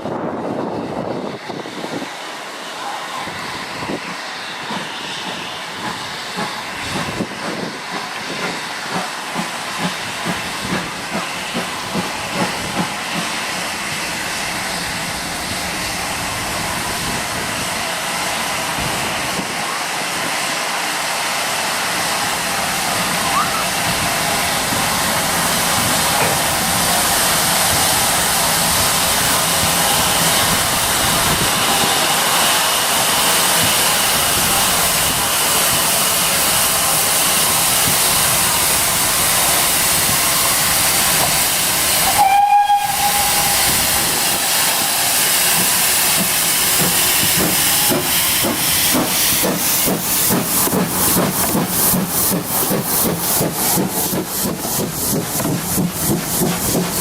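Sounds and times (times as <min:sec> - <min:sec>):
steam engine hissing: 0:00.0 - 0:57.0
steam locomotive exhaust beats: 0:00.0 - 0:57.0
steam whistle blast: 0:42.0 - 0:46.0.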